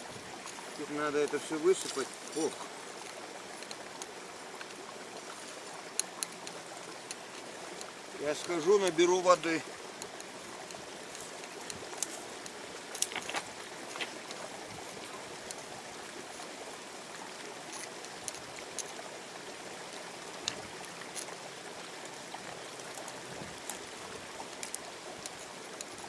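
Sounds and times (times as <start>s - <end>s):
river water flowing over stones: 0.0s - 26.0s
small clicks and knocks: 10.0s - 14.4s, 24.6s - 26.0s.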